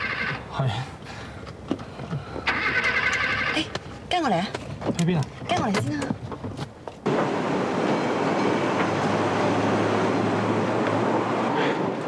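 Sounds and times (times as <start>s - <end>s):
tram rumbling on tracks: 7.0s - 12.0s.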